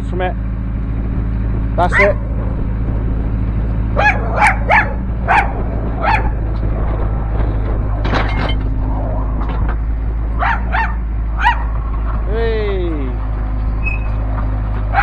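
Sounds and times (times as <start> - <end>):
excavator diesel engine hum: 0.0 - 15.0
dog barking: 4.0 - 6.4, 10.4 - 11.8.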